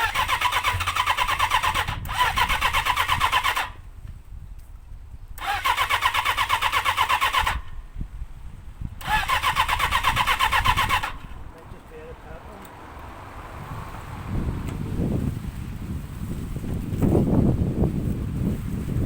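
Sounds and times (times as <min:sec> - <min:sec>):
motorcycle starter cranking: 0:00.0 - 0:03.9, 0:05.4 - 0:07.9, 0:09.0 - 0:11.6
wind rumble on microphone: 0:00.0 - 0:19.0.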